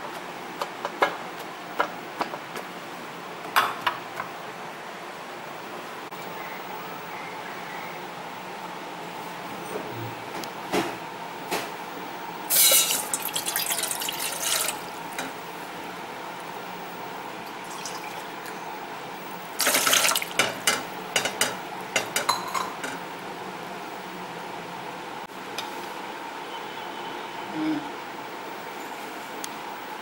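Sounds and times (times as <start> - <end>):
water running from a tap: 12.5 - 14.9, 17.6 - 18.5, 19.6 - 20.4.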